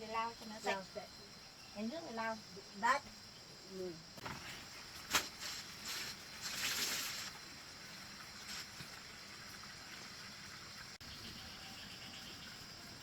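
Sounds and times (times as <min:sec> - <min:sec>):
insects droning: 0:00.0 - 0:13.0
wet cloth wiping bamboo: 0:04.3 - 0:07.4.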